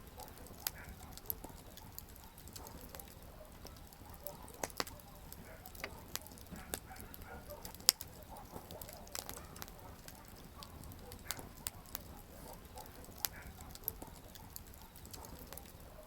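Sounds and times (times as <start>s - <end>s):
campfire crackling and popping: 0.0s - 16.0s
faint steady hiss: 0.0s - 16.0s.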